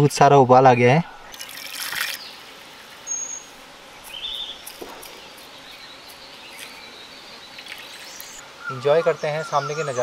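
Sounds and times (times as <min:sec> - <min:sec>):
faint steady hiss: 0:00.0 - 0:10.0
bird chirps: 0:02.1 - 0:10.0.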